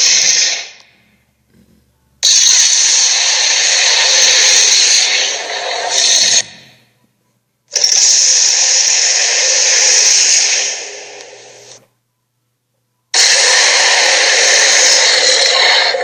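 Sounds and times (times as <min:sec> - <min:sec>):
harsh rasping creature sounds: 0:07.8 - 0:11.7, 0:13.2 - 0:16.0.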